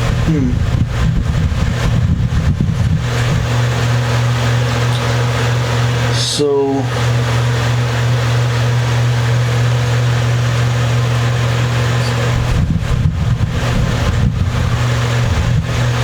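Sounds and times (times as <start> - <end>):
low hum with hiss: 0.0 - 16.0
low rumbling handling knocks: 12.0 - 16.0.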